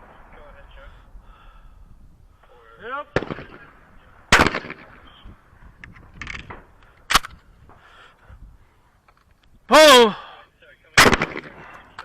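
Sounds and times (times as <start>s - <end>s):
shotgun shots: 3.1s - 5.1s, 11.0s - 11.7s.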